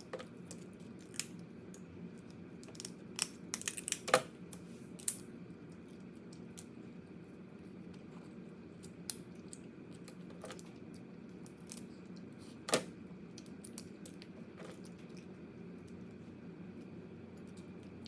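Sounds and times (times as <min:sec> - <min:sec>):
crab shell clicks and crackles: 0:00.4 - 0:04.2.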